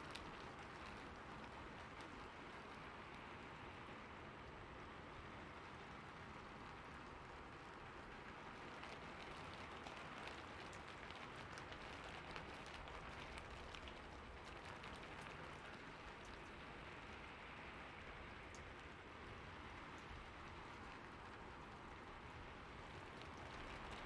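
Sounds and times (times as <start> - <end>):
raindrop ticks: 0.0 - 3.3, 6.6 - 24.0.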